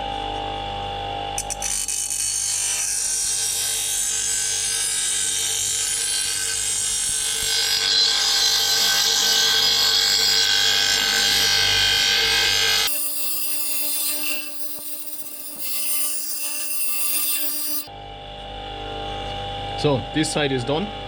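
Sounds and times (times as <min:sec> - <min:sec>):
grinder motor hum: 0:00.0 - 0:20.0
bench grinder grinding steel blade: 0:01.4 - 0:17.9.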